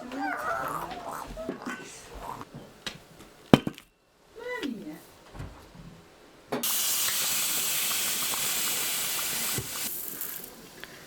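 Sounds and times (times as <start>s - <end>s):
loud steady hiss: 6.6s - 11.0s.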